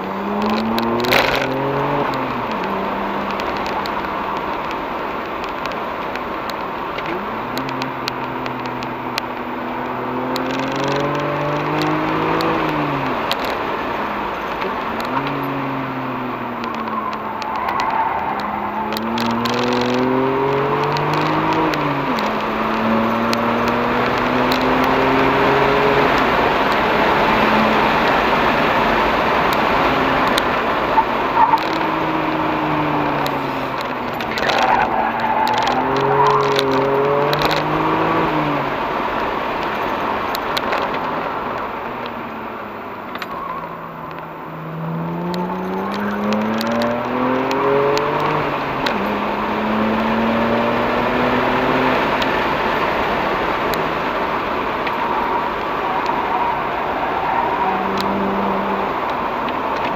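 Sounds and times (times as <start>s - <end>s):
car engine accelerating: 0.0s - 59.9s
wind and tyre noise: 0.0s - 59.9s.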